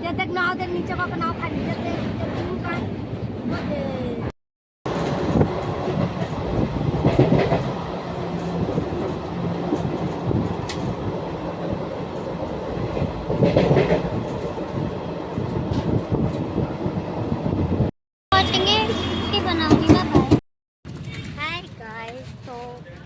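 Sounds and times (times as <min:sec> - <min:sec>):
train coaches rumbling: 0:04.9 - 0:20.4
wheels knocking over rail joints: 0:18.4 - 0:21.0.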